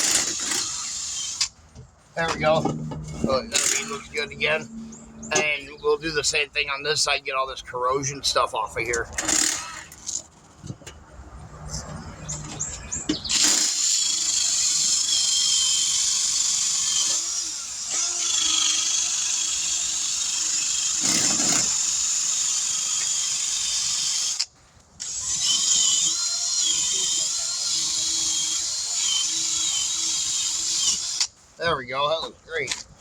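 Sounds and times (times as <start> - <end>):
power tool scouring steel rim: 0.0 - 1.5, 2.3 - 5.6, 13.3 - 24.4, 25.0 - 31.3.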